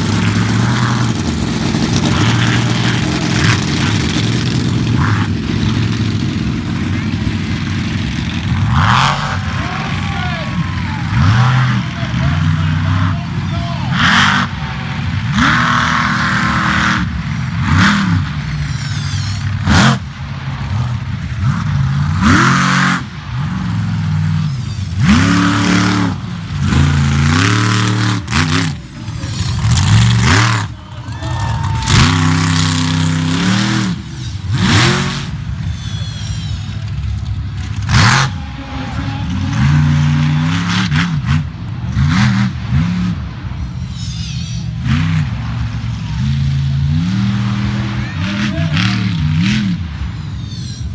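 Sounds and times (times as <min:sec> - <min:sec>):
monster truck engine revving: 0:00.0 - 0:50.9.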